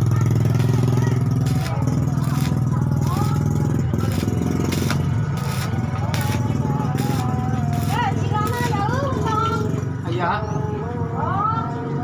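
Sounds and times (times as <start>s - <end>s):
motor humming with rapid flutter: 0.5s - 9.6s.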